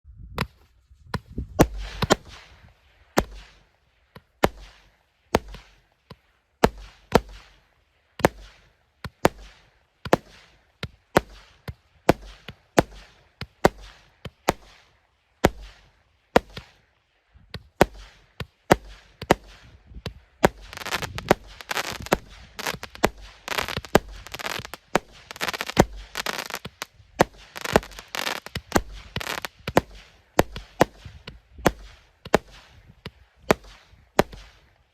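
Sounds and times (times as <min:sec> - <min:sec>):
firework bangs: 0:01.5 - 0:03.6, 0:04.4 - 0:05.8, 0:06.6 - 0:16.8, 0:17.7 - 0:34.8
firework crackle: 0:01.6 - 0:03.8, 0:04.4 - 0:16.9, 0:17.7 - 0:34.8.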